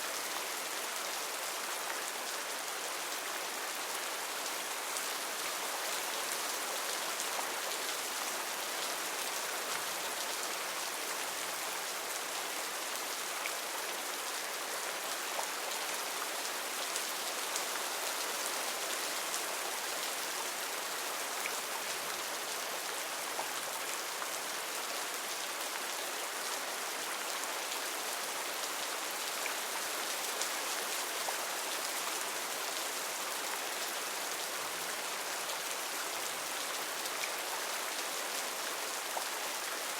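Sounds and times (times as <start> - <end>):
heavy rain on foliage: 0.0 - 39.9.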